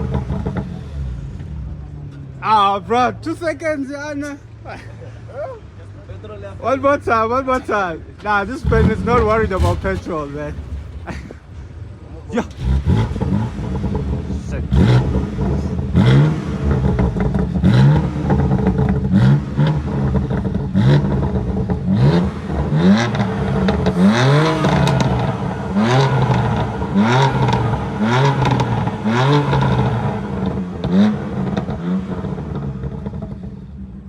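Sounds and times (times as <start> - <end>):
exhaust crackles and pops: 0.0 - 2.3, 8.2 - 11.6, 12.4 - 34.0
car engine revving in blips: 0.0 - 3.1, 8.2 - 11.2, 12.4 - 34.0.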